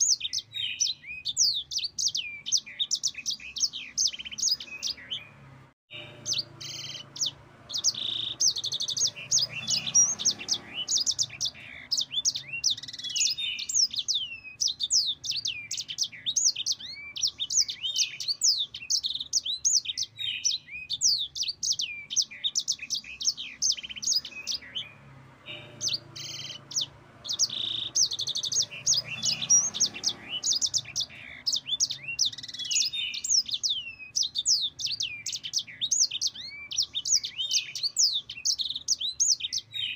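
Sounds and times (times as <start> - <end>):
songbird singing rapid trills: 0.0 - 39.9.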